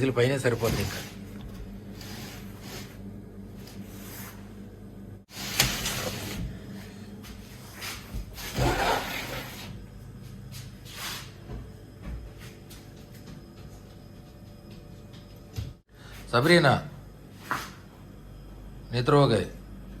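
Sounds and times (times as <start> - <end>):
freezer hum: 0.0 - 20.0.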